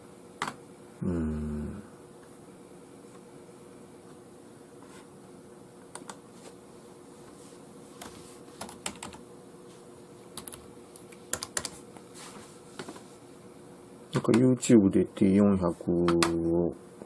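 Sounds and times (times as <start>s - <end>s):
faint steady hum: 0.0s - 17.0s
keystrokes on computer keyboard: 5.9s - 6.2s, 8.0s - 9.2s, 10.4s - 11.8s.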